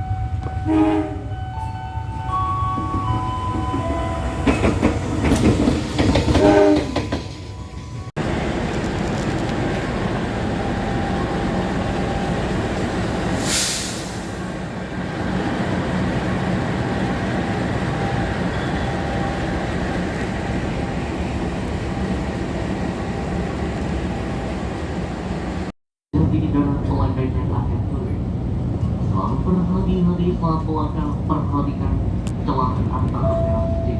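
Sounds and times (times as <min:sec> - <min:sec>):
train rumbling on rails: 0:00.0 - 0:33.9
short burst of hiss: 0:13.4 - 0:14.4.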